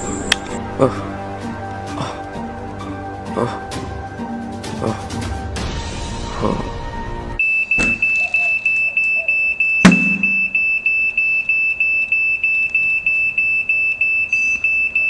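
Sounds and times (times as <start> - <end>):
music: 0.0 - 7.4
smoke alarm beeping: 7.4 - 15.0
loud thump: 9.9 - 10.5.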